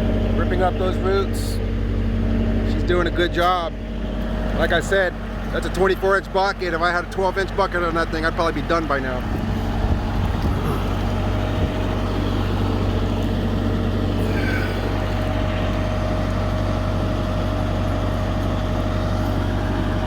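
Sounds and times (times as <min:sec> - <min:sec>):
tractor diesel engine running: 0:00.0 - 0:20.0
steady high whine: 0:08.0 - 0:20.0.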